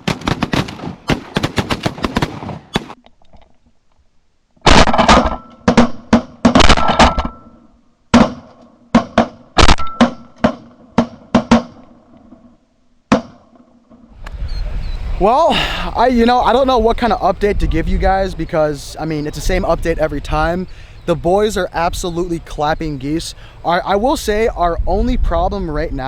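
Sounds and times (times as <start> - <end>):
shotgun shots: 0.0 - 3.0, 4.6 - 12.0.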